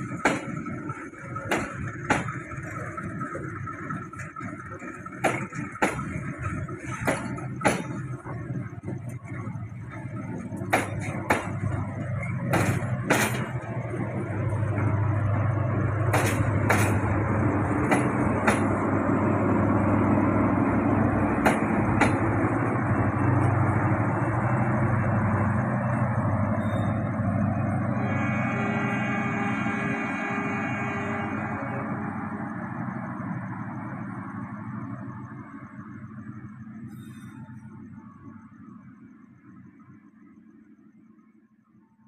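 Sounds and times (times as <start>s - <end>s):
wheels clacking over rail joints: 0.0s - 27.1s
train engine drone: 0.0s - 42.0s.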